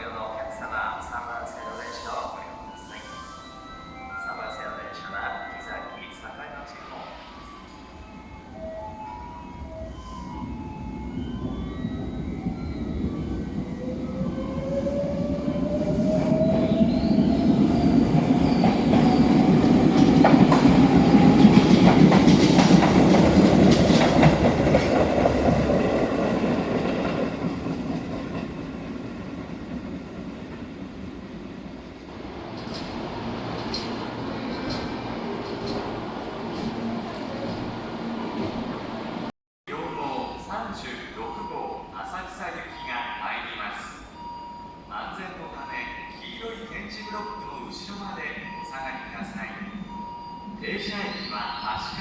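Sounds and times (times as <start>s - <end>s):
train rumble: 0.0s - 52.0s
wheels clacking over rail joints: 18.6s - 29.9s.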